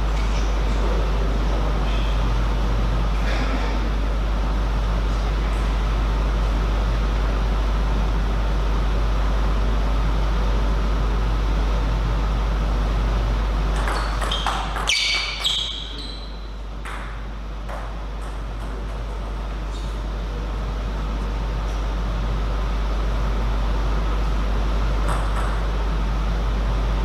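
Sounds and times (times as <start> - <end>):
steady hall hum: 0.0 - 27.0
ball bouncing and settling: 13.7 - 19.3, 25.0 - 25.7.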